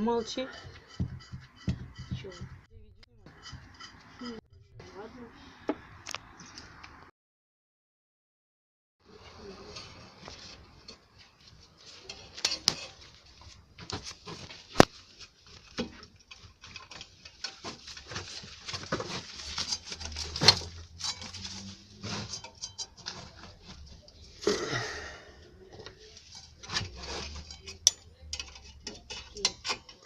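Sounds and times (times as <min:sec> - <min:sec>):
objects clicking and rustling: 0:09.8 - 0:24.2.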